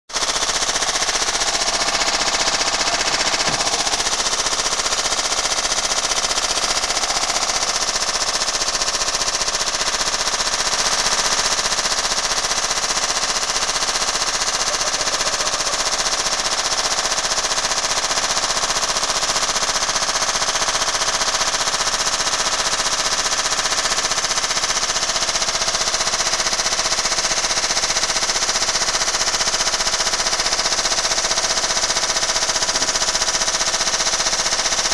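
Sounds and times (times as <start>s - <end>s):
washing machine hammering clatter: 0.1s - 21.3s, 28.2s - 34.9s.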